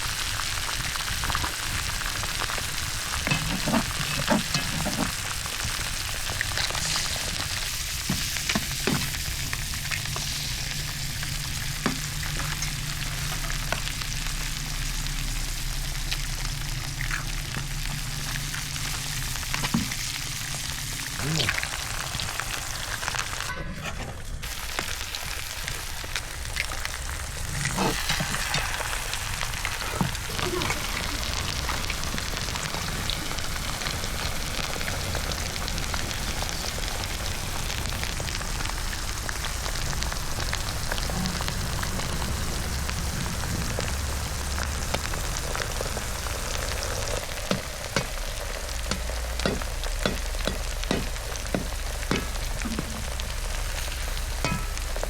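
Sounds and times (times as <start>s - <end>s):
food frying sizzle: 0.0s - 23.5s, 24.2s - 55.0s
pops and crackles of frying: 0.0s - 23.6s, 24.2s - 55.0s.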